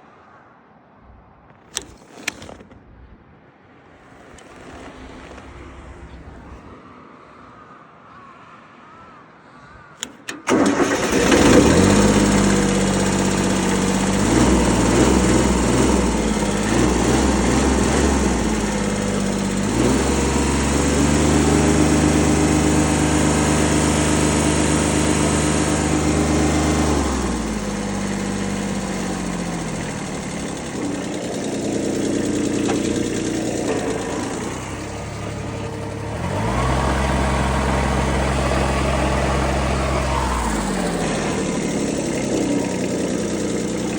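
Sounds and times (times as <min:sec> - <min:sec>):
tractor diesel engine starting: 0:10.0 - 0:43.9.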